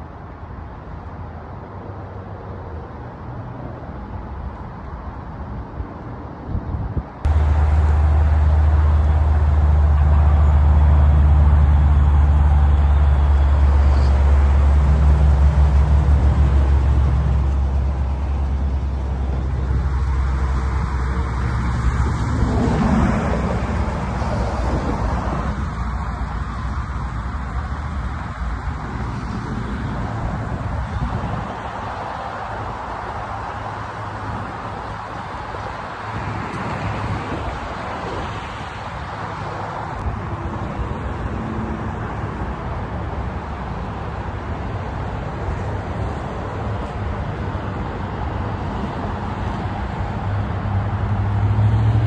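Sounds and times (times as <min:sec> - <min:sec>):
car engine idling: 0:07.3 - 0:21.4.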